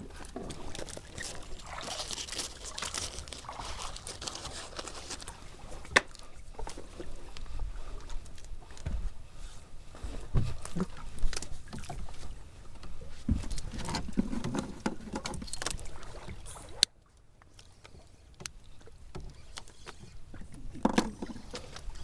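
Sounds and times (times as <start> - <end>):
gear knocking and clicking on boat: 17.8 - 22.0.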